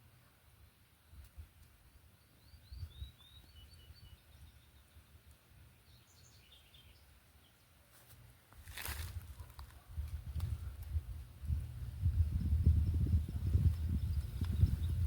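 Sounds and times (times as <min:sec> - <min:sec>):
faint bird chirps: 0:01.8 - 0:07.8
low wind rumble: 0:08.9 - 0:15.0.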